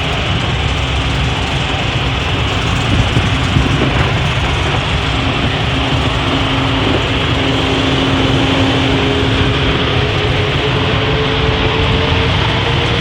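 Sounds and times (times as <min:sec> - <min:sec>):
airplane engine rumble: 0:00.0 - 0:13.0
faint rising tone: 0:03.3 - 0:12.9.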